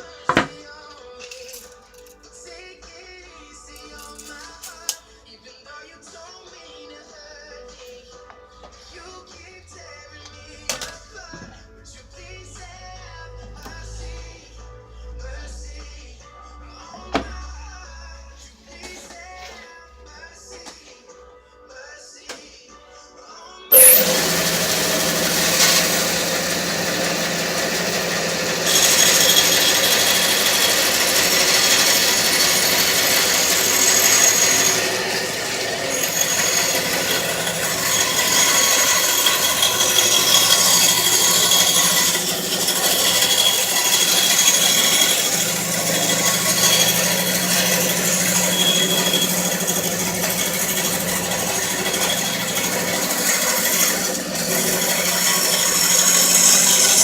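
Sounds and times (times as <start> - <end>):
bandsaw motor hum: 23.7 - 57.0
saw blade cutting wood: 23.7 - 57.0.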